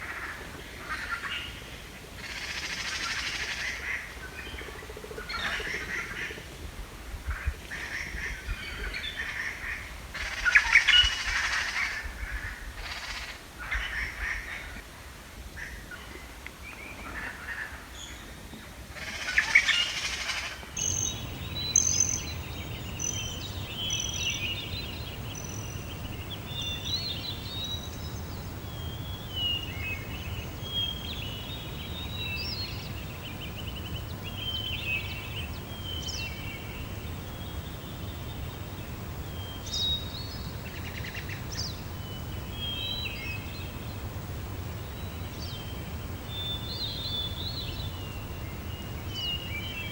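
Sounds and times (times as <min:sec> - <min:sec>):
songbirds chirping and trilling: 0:19.2 - 0:49.9
low outdoor rumble: 0:20.8 - 0:49.9.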